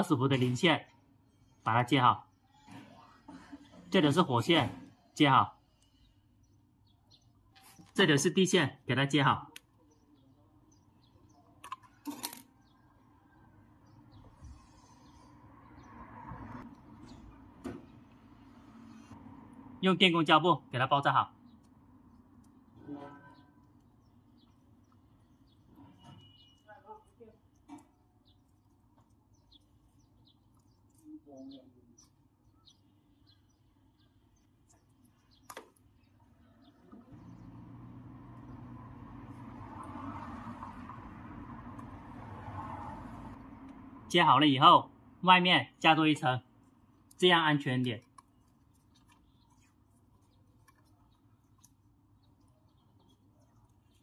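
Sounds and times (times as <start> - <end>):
faint bird chirps: 22.8 - 37.4.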